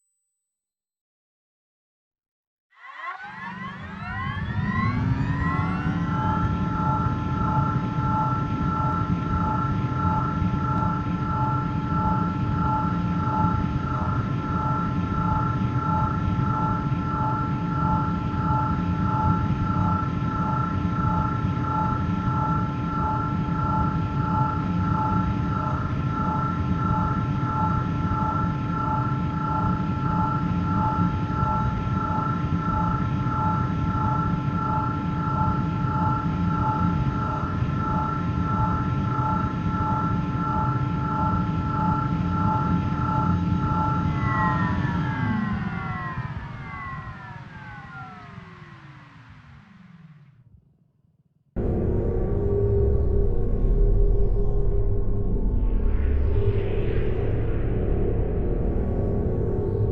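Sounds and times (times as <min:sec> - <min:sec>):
low rumbling noise: 0:41.2 - 0:50.4, 0:51.6 - 0:59.9
pulsing high tones: 0:42.4 - 0:50.3.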